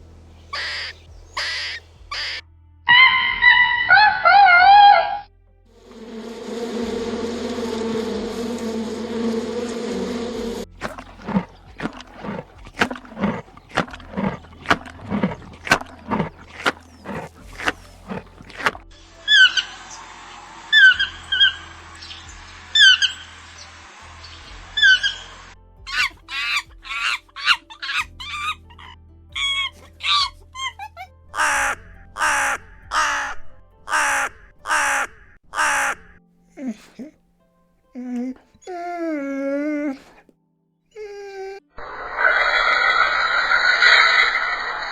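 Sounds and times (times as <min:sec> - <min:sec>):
animal making sharp calls: 0:00.5 - 0:05.2, 0:05.8 - 0:19.6, 0:25.9 - 0:36.9
steady low drone: 0:05.3 - 0:25.9.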